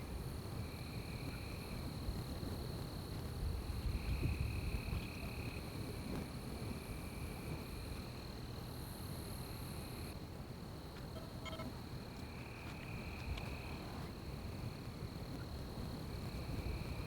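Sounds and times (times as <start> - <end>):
lower insect trill: 0.0 - 10.2, 10.8 - 17.0
high-pitched insect drone: 11.1 - 11.8.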